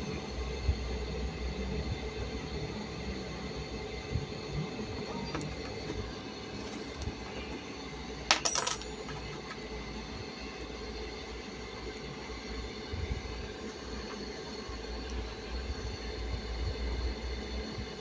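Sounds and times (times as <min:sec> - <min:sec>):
steady low hum: 0:00.0 - 0:18.0
metallic clatter of small objects: 0:08.3 - 0:09.6.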